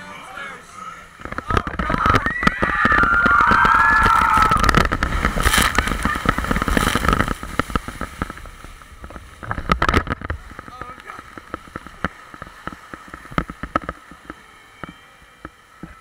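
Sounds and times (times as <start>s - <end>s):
wind buffeting microphone: 1.3s - 14.0s.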